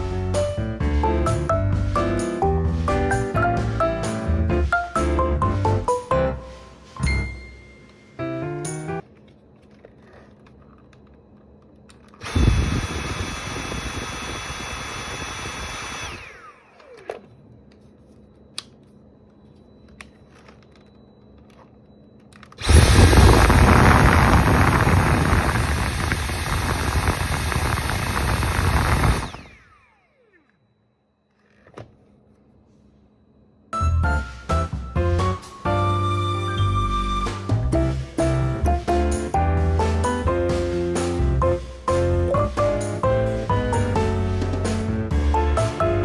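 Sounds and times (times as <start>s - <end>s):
stick vacuum motor whining: 11.8s - 17.7s, 22.3s - 30.7s.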